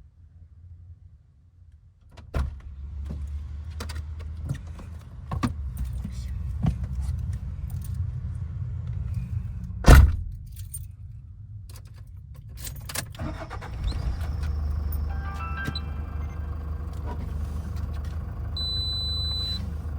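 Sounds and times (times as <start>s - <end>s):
low steady vehicle hum: 0.0s - 19.9s
low vehicle rumble: 13.2s - 19.9s
vehicle door shutting: 13.2s - 19.9s.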